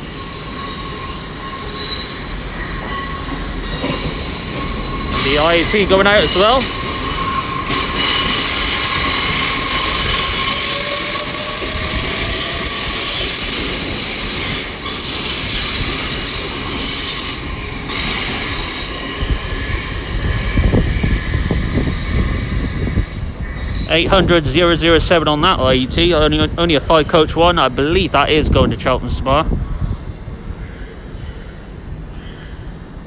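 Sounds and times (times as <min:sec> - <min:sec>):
high-pitched train tones: 0:00.0 - 0:24.3
train running gear rumble: 0:00.0 - 0:33.0.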